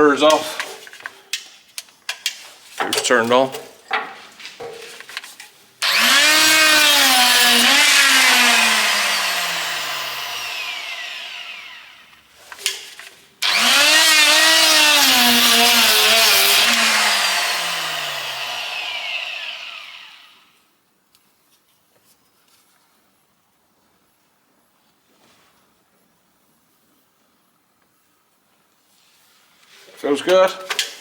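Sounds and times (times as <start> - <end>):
power tool deburring steel: 5.8 - 12.3, 13.4 - 20.5.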